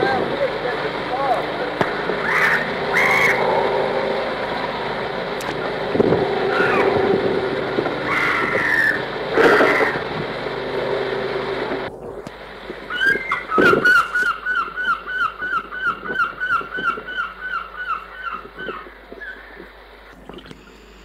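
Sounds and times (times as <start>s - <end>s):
bird calling down-slurred notes: 0.0s - 21.0s
engine drone: 0.0s - 21.0s
short bird cries: 2.2s - 3.6s, 6.5s - 7.0s, 8.0s - 10.0s.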